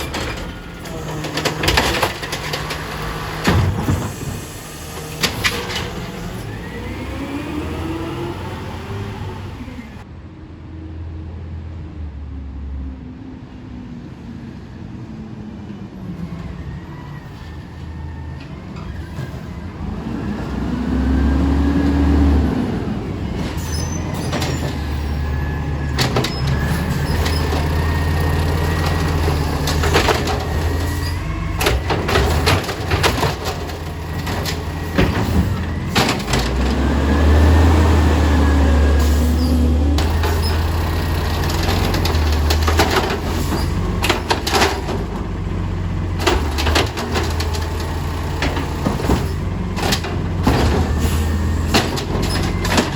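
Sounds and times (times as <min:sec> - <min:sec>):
cart banging into hopper: 0:00.0 - 0:06.5, 0:23.2 - 0:37.8, 0:39.0 - 0:45.4, 0:46.2 - 0:52.9
garbage truck engine revving: 0:00.0 - 0:10.0, 0:18.2 - 0:52.9.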